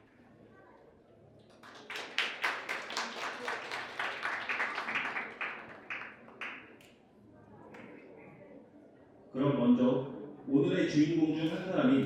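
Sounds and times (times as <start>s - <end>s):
guests applauding: 1.5s - 6.7s.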